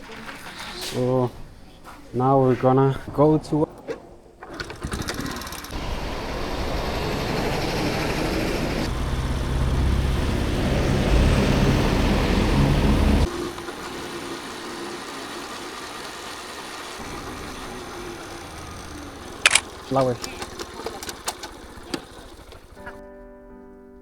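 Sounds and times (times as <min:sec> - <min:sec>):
vehicle engine running: 0:05.7 - 0:23.0.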